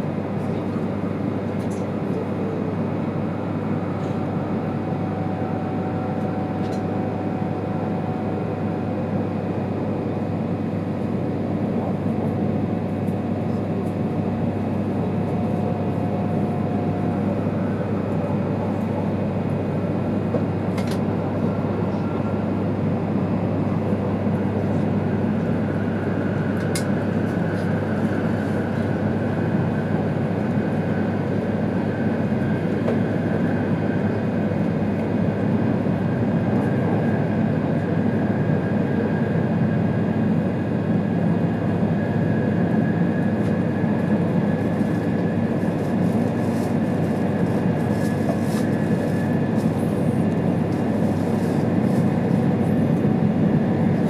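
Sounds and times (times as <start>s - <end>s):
train cabin rumble: 11.3s - 34.2s.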